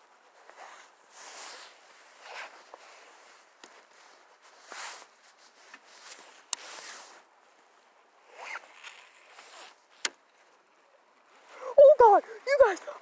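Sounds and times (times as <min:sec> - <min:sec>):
fishing rod swishes and rustles: 0:00.2 - 0:07.4.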